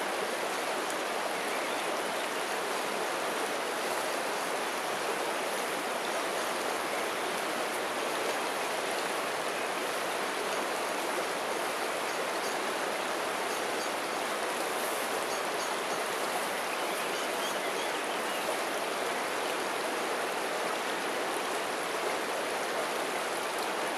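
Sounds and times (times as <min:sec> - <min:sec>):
river water flowing: 0:00.0 - 0:23.9.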